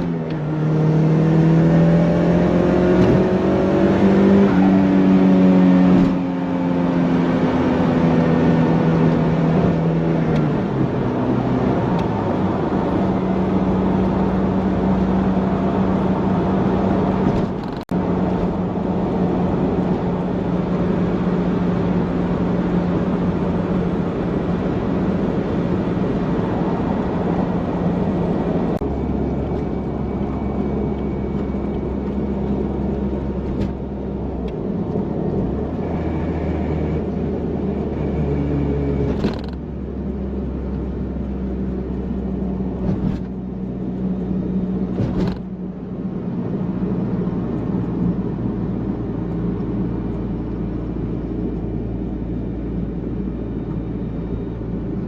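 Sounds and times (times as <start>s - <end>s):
car engine revving and idling: 0.0s - 55.0s.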